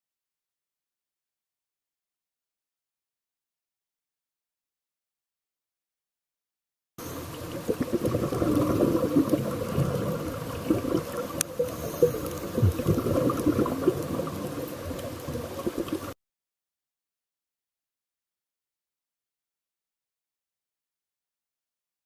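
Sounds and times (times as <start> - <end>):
water gurgling and bubbling: 7.1 - 16.2.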